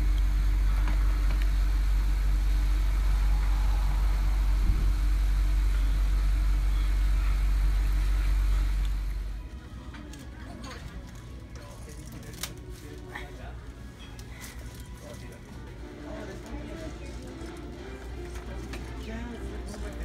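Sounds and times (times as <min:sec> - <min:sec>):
vehicle engine running: 0:00.0 - 0:09.4.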